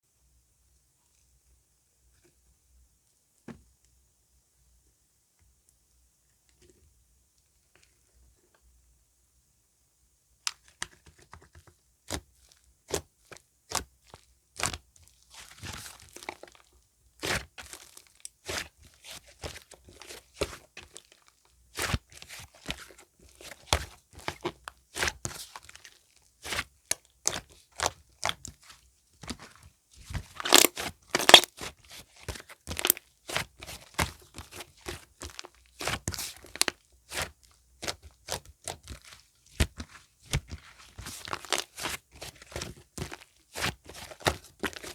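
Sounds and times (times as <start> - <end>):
slime clicking and popping: 30.4 - 31.5.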